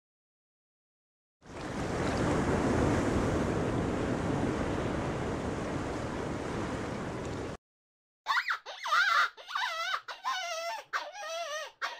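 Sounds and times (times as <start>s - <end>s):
underwater rushing water: 1.4s - 7.6s.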